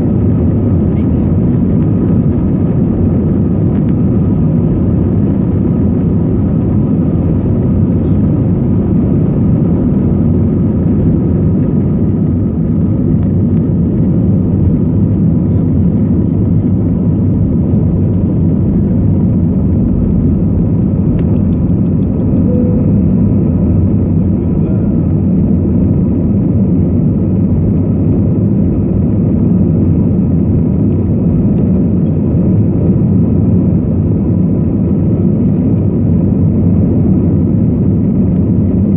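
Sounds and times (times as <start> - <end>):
jet engines droning: 0.0 - 38.9
faint high whining tones: 21.2 - 25.0.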